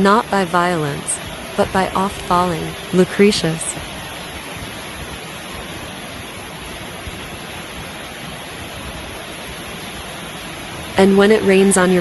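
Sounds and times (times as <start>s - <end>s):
falling water rushing: 0.0s - 12.0s.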